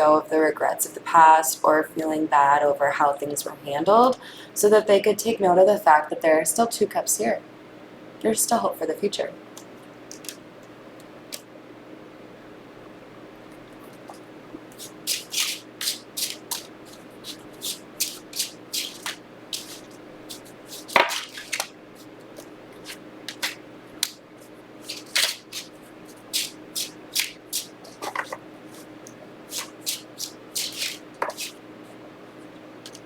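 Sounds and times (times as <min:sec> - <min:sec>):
cards being shuffled: 0:14.8 - 0:24.2, 0:24.8 - 0:28.9, 0:29.5 - 0:31.6.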